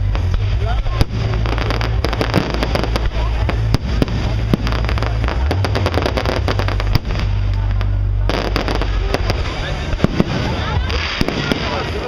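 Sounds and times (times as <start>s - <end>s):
firework bangs: 0.0s - 12.0s
fireworks crackling: 0.0s - 12.0s
low rumble: 0.0s - 12.0s.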